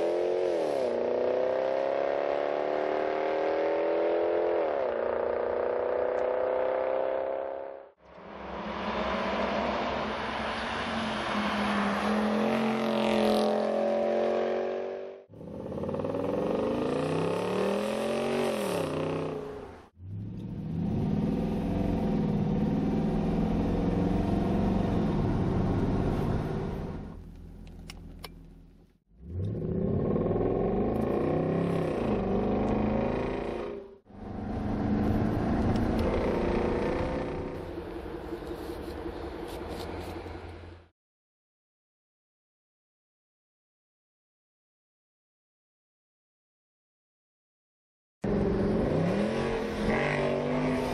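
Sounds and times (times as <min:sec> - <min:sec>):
car engine revving: 0:29.2 - 0:40.8.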